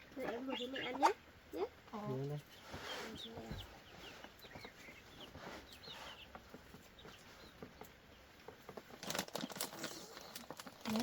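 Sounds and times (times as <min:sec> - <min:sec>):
chickens and chicks peeping and clucking: 0:00.0 - 0:11.0
loud rustle or clatter: 0:08.5 - 0:11.0.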